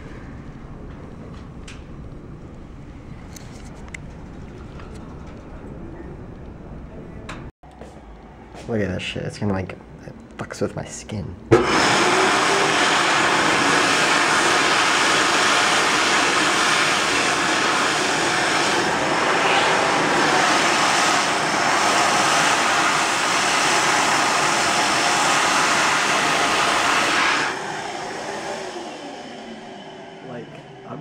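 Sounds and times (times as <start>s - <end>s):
hand dryer blowing: 11.5s - 31.0s.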